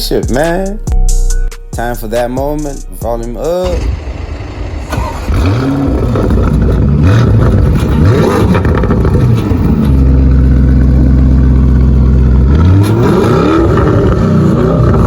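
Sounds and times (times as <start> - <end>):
car engine revving loudly: 3.6 - 15.0.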